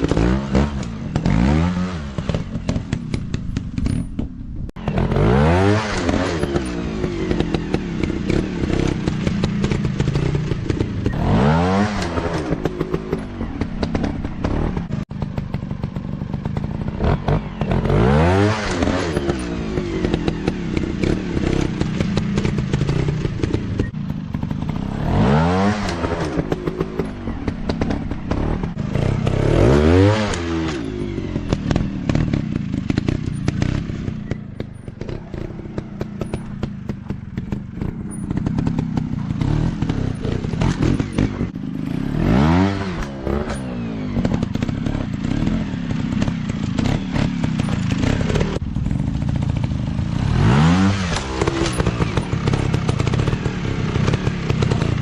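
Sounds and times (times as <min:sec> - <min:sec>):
dirt bike engines revving: 0:00.0 - 0:04.1, 0:04.8 - 0:55.0
clicks and clatter: 0:51.1 - 0:53.4.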